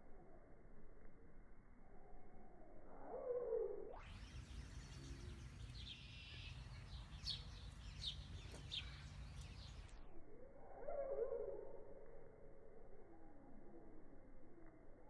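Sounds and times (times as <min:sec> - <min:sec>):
small birds chirping: 0:04.0 - 0:10.1.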